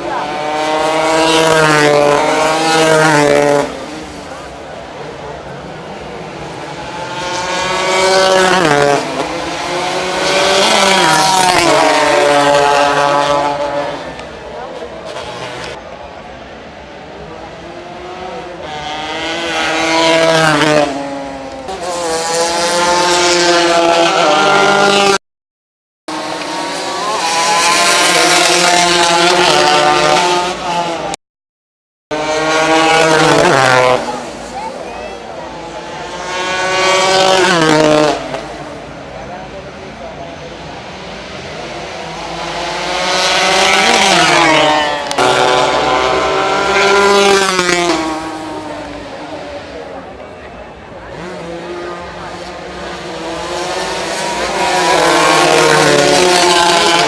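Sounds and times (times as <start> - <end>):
racing motorcycles passing: 0.0 - 16.1, 17.1 - 25.2, 26.1 - 31.2, 32.1 - 57.0.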